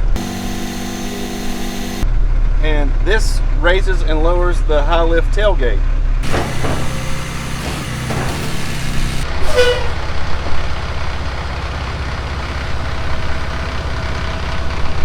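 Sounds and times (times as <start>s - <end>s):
diesel truck engine running: 0.0s - 2.5s, 5.9s - 15.0s
short falling squeal: 6.2s - 10.3s.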